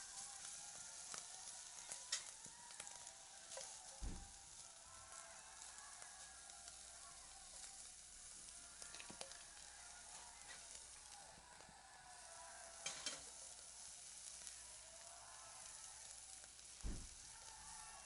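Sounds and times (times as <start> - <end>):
food sizzling: 0.0 - 18.0
sharp fire pops: 3.6 - 4.5, 16.6 - 17.7.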